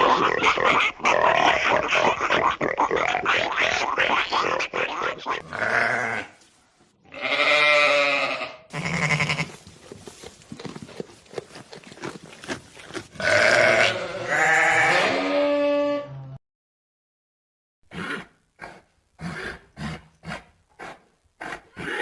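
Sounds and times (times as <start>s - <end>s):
animal bleating: 0.0s - 6.4s, 7.1s - 9.6s, 13.1s - 16.2s.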